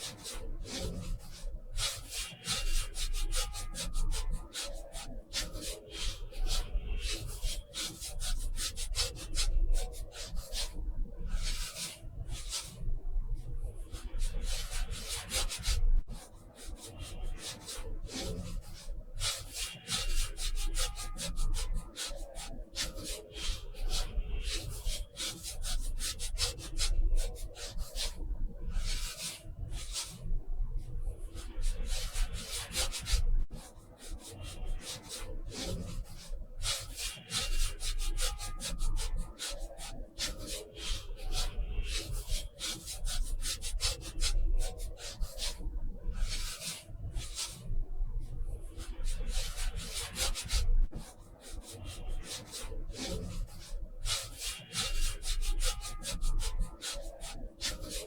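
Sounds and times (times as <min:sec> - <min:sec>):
tool scratching across paper: 0:48.7 - 0:58.0.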